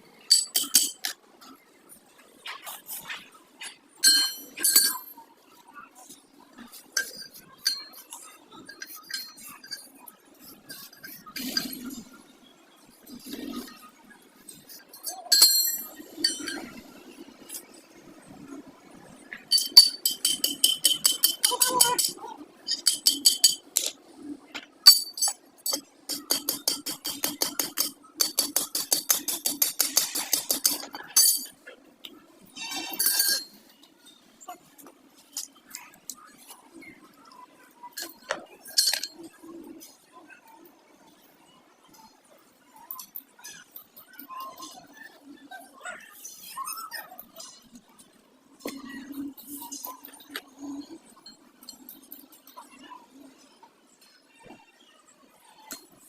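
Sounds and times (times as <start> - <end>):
metal tools clinking: 0.3 - 1.2, 2.5 - 5.2, 6.0 - 12.1, 14.5 - 16.8, 19.3 - 24.0, 24.6 - 31.8, 32.6 - 36.6, 37.3 - 40.0.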